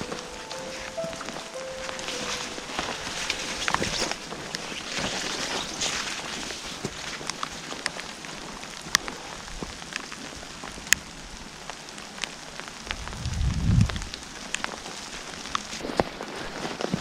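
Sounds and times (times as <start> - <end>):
raindrops clicking on surface: 0.0 - 17.0
steady rain: 0.0 - 17.0
low rumble: 13.0 - 14.1.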